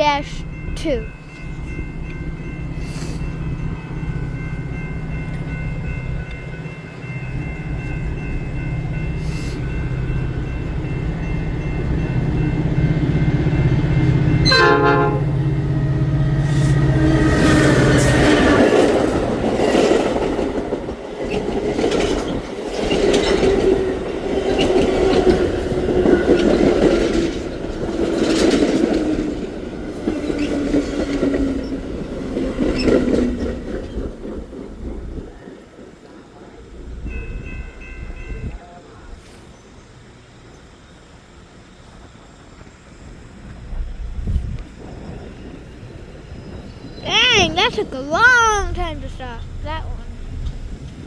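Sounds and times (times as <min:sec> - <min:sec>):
train braking: 0:00.1 - 0:20.5
short high tone: 0:47.1 - 0:50.0.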